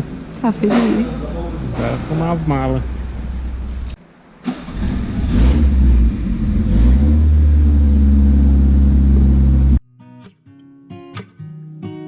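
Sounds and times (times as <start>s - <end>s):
petrol engine starting and revving: 0.0s - 9.8s.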